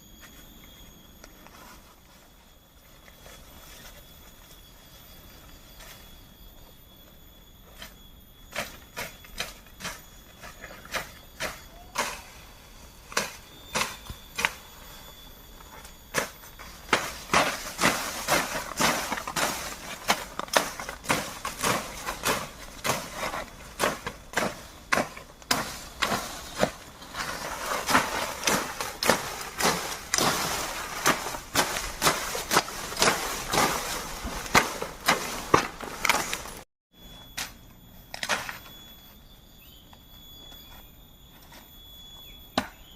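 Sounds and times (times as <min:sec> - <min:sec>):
high insect drone: 0:00.0 - 0:42.9
bamboo being chopped: 0:27.9 - 0:36.6.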